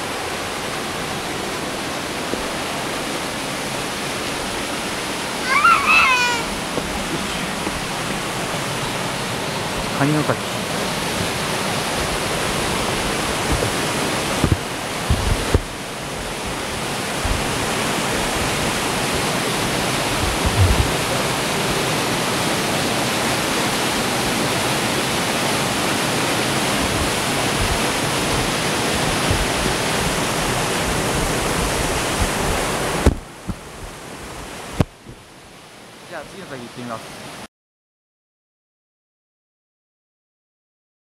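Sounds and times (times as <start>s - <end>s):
waterfall rushing into pool: 0.0s - 37.5s
low bumps: 1.0s - 21.9s, 26.7s - 34.0s.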